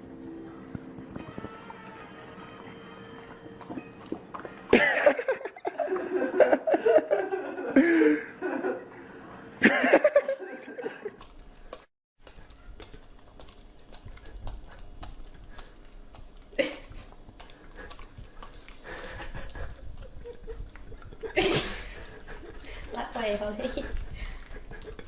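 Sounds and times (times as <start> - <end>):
dog licking and smacking mouth: 11.2 - 25.0.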